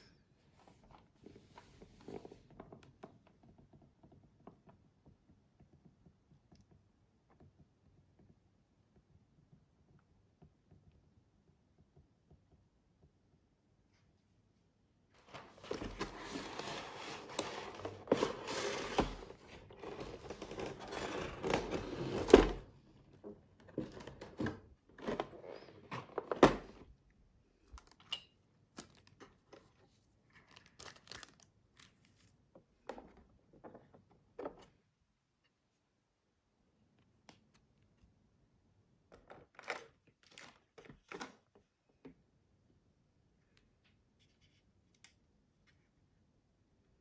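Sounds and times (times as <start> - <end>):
packaging crinkling and rustling: 15.2 - 22.7, 30.4 - 32.0.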